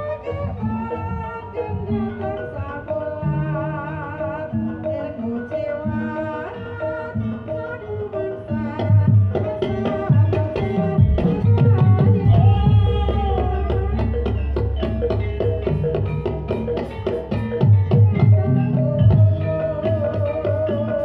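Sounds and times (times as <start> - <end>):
gamelan melody: 0.0 - 21.0
hand drum strokes: 8.7 - 21.0.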